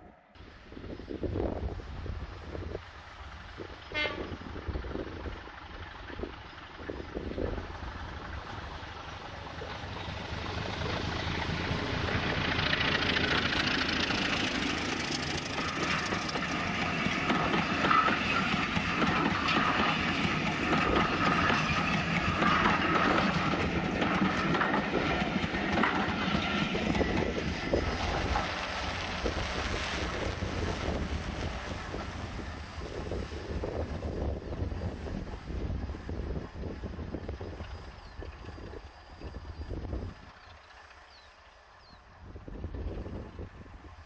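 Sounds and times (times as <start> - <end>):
train wheels rushing on rail: 0.0 - 44.0.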